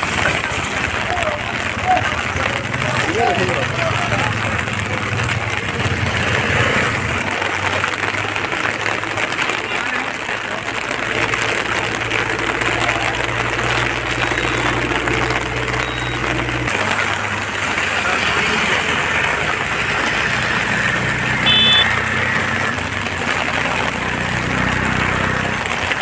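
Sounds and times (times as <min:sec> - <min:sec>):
vehicle engines running: 0:00.0 - 0:26.0
short high horn toot: 0:21.4 - 0:21.9.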